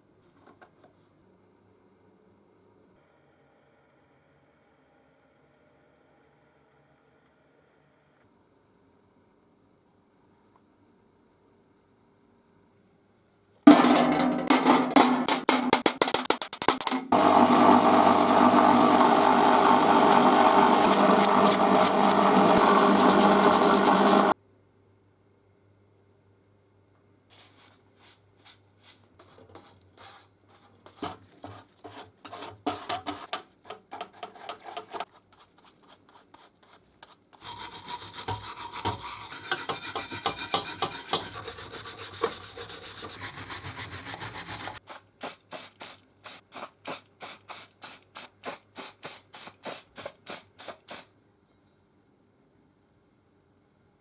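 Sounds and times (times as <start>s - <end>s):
abrasive rubbing on metal: 17.1s - 24.4s, 37.4s - 44.8s.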